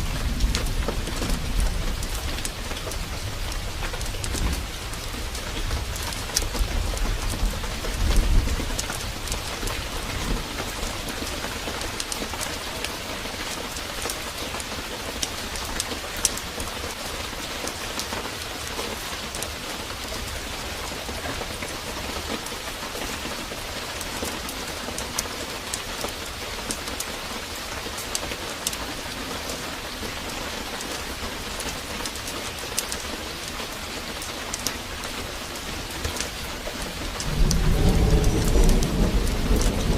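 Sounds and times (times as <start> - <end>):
low rumble of thunder: 0.0 - 11.8, 37.0 - 39.9
sharp rain drop ticks: 0.0 - 19.6, 23.2 - 27.2, 27.8 - 39.9
heavy rain pouring: 0.0 - 39.9.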